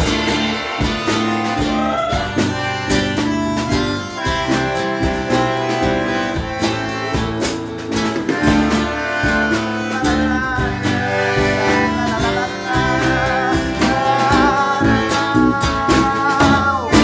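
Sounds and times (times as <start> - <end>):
held wavering melody notes: 0.0 - 15.7
live band playing: 0.0 - 17.0.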